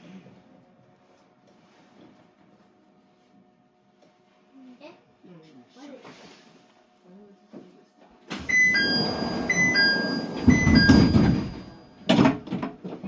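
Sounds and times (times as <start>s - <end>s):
sliding doors rumbling: 8.3s - 12.4s
two-note door chime: 8.5s - 12.1s.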